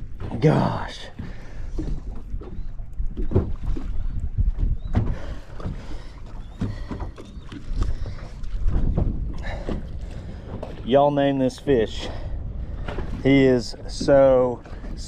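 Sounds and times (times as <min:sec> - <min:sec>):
wind and water against hull: 0:00.0 - 0:15.0.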